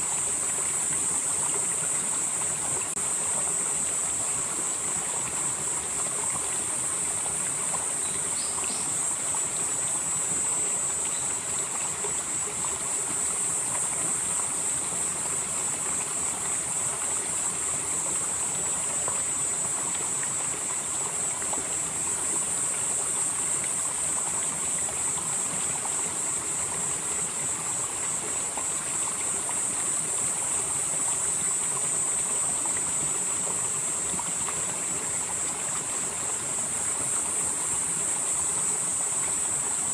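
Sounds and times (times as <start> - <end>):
stream flowing over rocks: 0.0 - 39.9
high-pitched insect chorus: 5.5 - 19.7.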